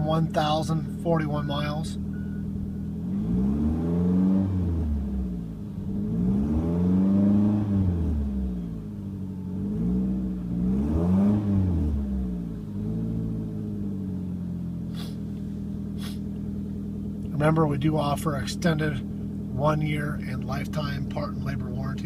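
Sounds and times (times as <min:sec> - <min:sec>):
car engine revving and idling: 0:00.0 - 0:22.0.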